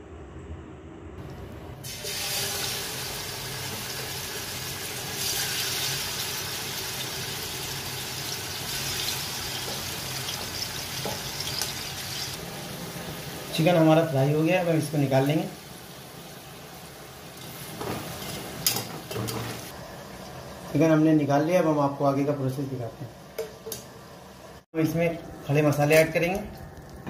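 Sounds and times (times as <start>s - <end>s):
chicken sizzling in hot oil: 1.8s - 21.2s.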